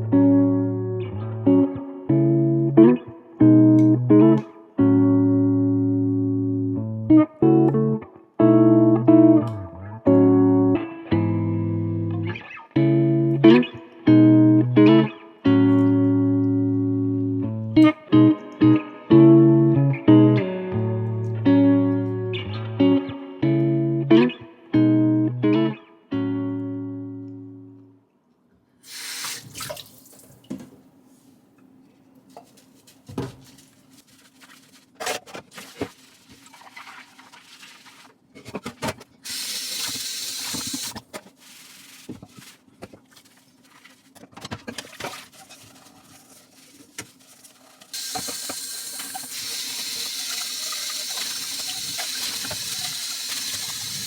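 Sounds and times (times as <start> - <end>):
tap water running: 28.9 - 30.6, 39.3 - 41.0, 47.9 - 54.0.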